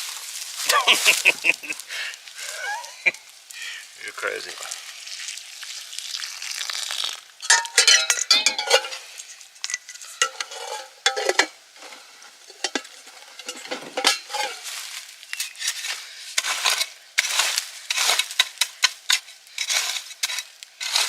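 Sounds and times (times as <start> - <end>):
metal cookware clinking and scraping: 7.4 - 14.7.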